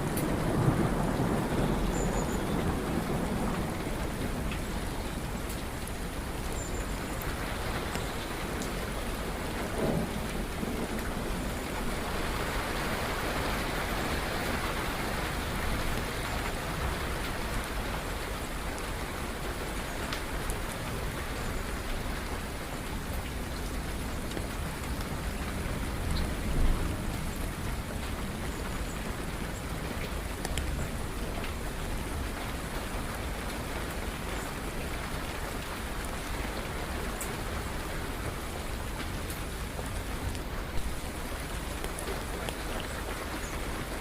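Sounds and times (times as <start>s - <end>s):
steady rain falling: 0.0s - 44.0s
thunder rumbling: 9.6s - 12.4s.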